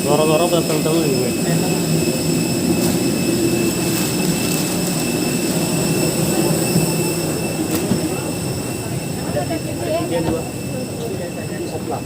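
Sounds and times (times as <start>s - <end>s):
airliner cabin drone: 0.0s - 12.0s
high jet engine whine: 0.0s - 12.0s.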